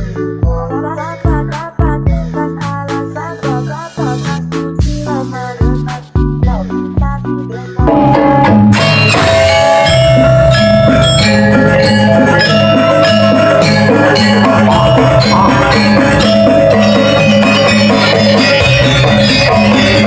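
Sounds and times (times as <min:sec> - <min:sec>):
metal percussion and drums ensemble: 0:07.9 - 0:20.0
bright cymbal-like layer: 0:08.0 - 0:20.0.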